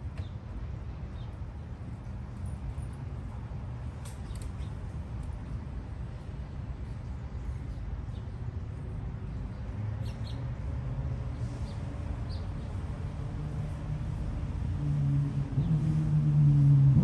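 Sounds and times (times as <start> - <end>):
small birds chirping: 9.5 - 10.4.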